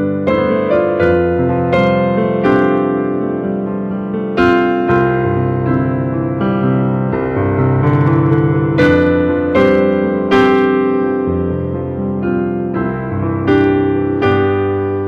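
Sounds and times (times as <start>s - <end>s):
keyboard piano slow chords: 0.0s - 15.0s.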